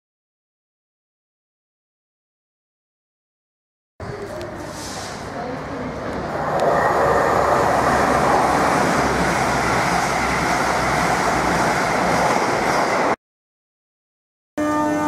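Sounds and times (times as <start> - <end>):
train passing at speed: 4.1 - 13.2.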